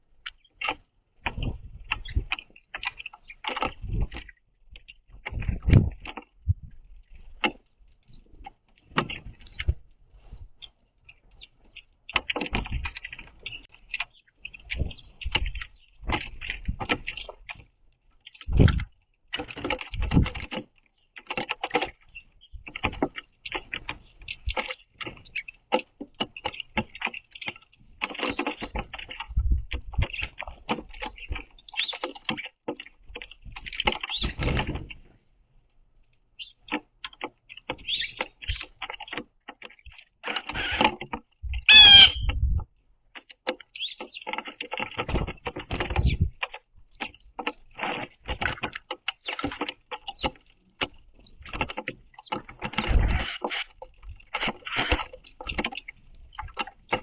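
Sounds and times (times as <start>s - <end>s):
birds pecking and scratching: 0.0s - 57.0s
birds landing thumps: 0.6s - 35.2s, 36.4s - 57.0s
wing flutters: 0.6s - 35.2s, 36.4s - 42.6s, 43.5s - 57.0s
loud bird call: 41.7s - 42.3s.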